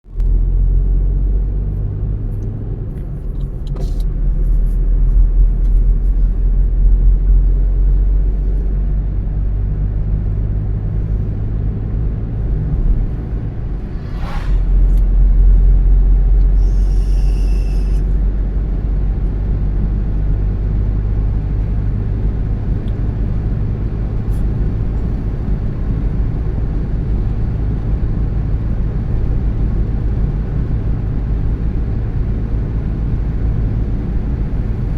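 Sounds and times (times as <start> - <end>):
car engine and tyres rumbling: 0.0 - 34.9
brief high hiss: 13.7 - 15.1.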